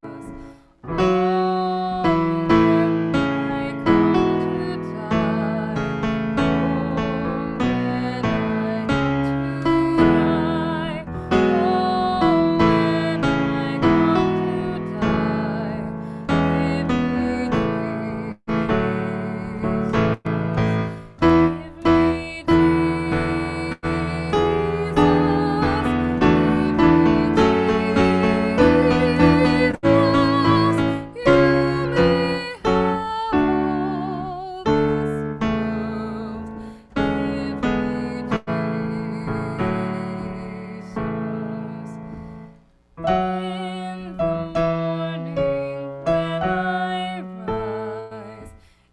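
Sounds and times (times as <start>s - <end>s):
slow gentle piano music: 0.0s - 48.7s.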